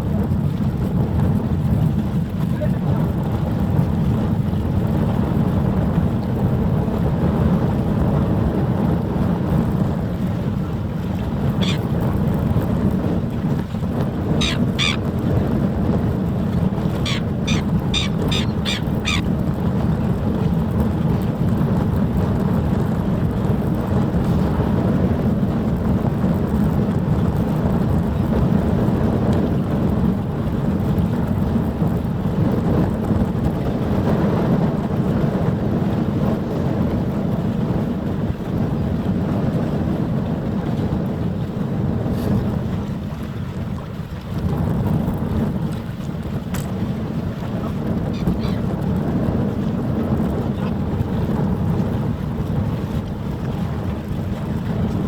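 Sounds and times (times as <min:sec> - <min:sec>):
wind buffeting microphone: 0:00.0 - 0:55.0
sharp bird calls: 0:14.4 - 0:15.0, 0:17.0 - 0:19.2.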